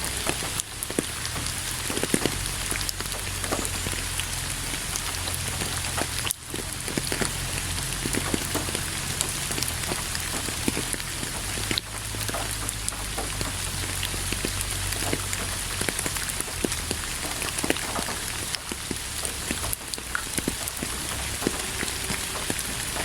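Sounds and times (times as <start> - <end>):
raindrop hits: 0.0 - 23.0
steady rain hiss: 0.0 - 23.0.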